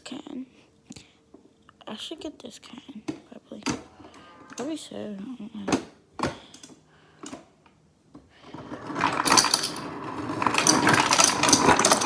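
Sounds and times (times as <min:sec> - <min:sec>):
ice clattering into a glass: 0:08.8 - 0:12.0.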